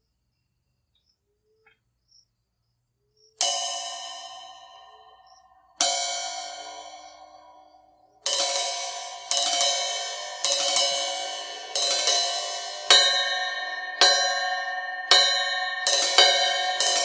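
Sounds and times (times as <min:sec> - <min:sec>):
crash cymbal strikes: 0:03.4 - 0:17.0.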